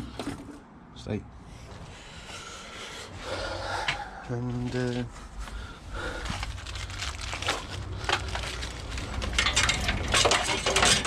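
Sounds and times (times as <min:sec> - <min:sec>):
packaging rustling and crinkling: 0:06.1 - 0:11.0.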